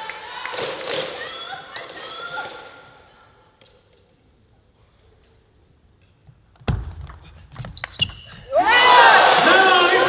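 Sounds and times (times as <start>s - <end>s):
crowd cheering: 8.5s - 10.0s.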